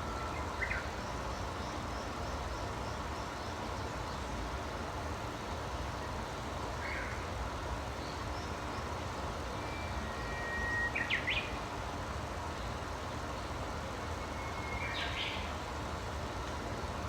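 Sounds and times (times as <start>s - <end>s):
songbird singing: 0.0s - 4.2s, 8.0s - 11.7s, 14.1s - 15.6s
low rumble and hiss: 0.0s - 17.0s.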